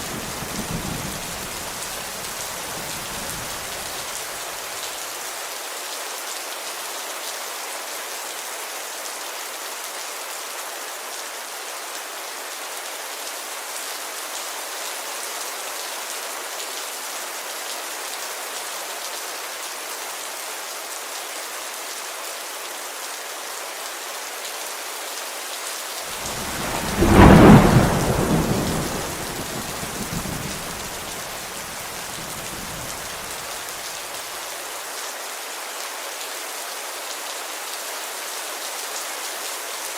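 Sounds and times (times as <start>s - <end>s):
thunderclap rumbling: 26.1s - 33.5s
rain on window glass: 26.1s - 34.3s.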